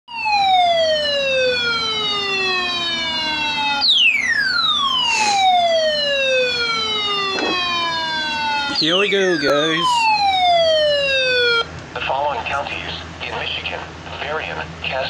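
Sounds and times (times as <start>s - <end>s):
electronic siren-like alert tone: 0.1s - 11.7s.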